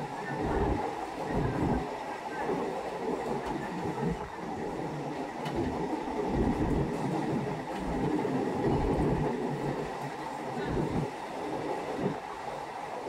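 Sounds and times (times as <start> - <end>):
electric train rumbling on track: 0.0 - 13.0
low thumps from the track: 0.4 - 11.2.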